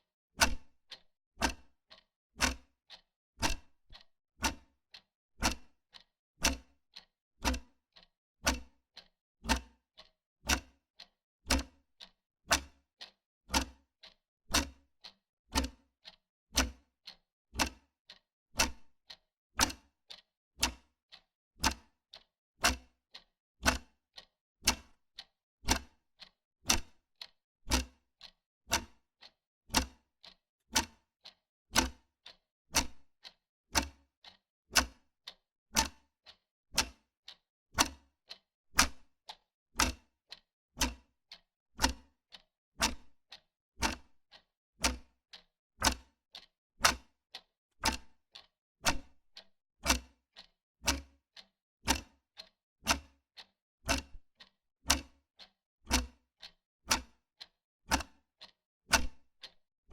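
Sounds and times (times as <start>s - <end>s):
wall clock ticking: 24.7s - 25.0s, 29.7s - 35.0s, 35.8s - 37.0s, 37.8s - 41.0s, 43.8s - 56.0s, 56.9s - 59.6s.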